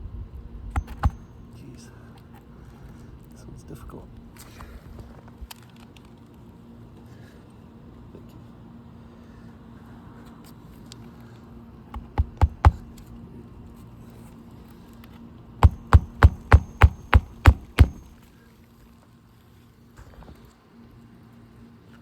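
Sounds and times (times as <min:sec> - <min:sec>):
hammer driving nail into shingle: 0:00.7 - 0:01.4, 0:12.0 - 0:13.1, 0:15.6 - 0:18.2.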